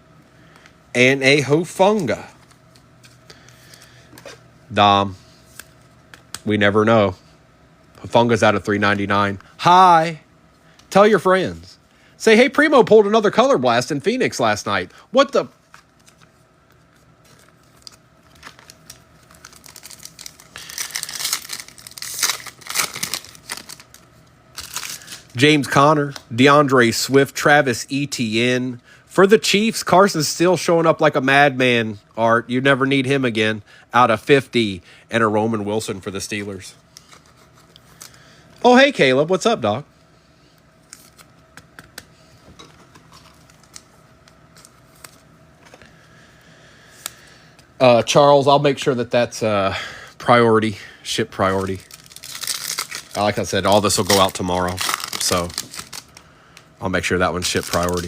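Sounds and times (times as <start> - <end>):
wrapper tearing and crinkling: 17.2 - 25.3, 51.5 - 56.2, 57.4 - 58.0
cards clicking and tapping: 41.5 - 42.1.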